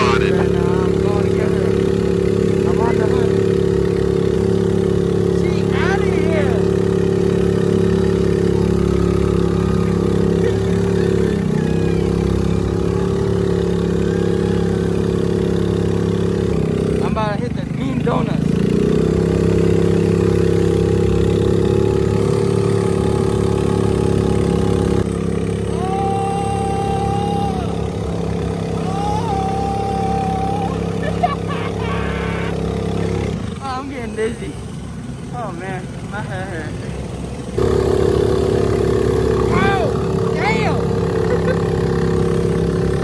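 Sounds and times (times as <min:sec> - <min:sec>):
small boat motor running: 0:00.0 - 0:43.0
long high tones: 0:25.7 - 0:32.6.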